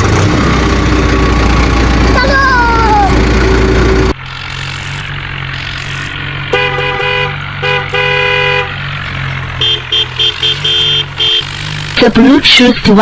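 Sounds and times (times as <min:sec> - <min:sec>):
low engine hum: 0:00.0 - 0:13.0
car horn honking: 0:05.8 - 0:12.4.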